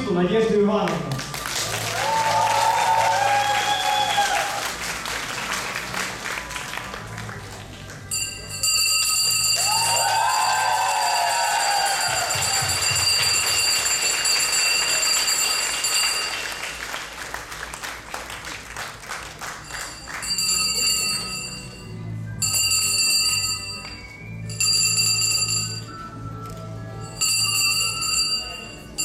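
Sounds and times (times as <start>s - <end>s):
people clapping: 0.8s - 8.4s, 9.6s - 21.1s
handbell ringing: 8.1s - 16.7s, 19.6s - 26.1s, 27.0s - 29.0s.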